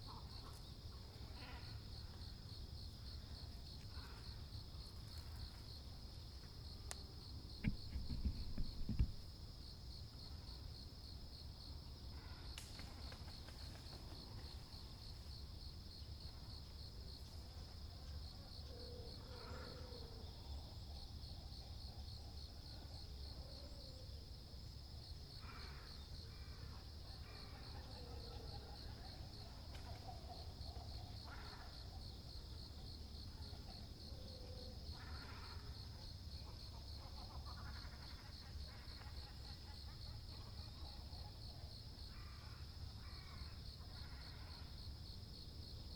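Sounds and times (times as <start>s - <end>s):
insect trill: 0.0s - 45.9s
low thump: 7.6s - 9.2s.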